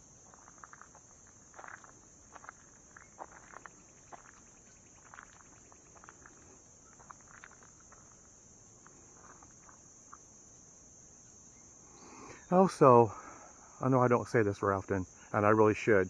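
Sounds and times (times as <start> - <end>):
soft ticks and scuffs: 0.0 - 10.4
crickets chirping: 0.0 - 16.0.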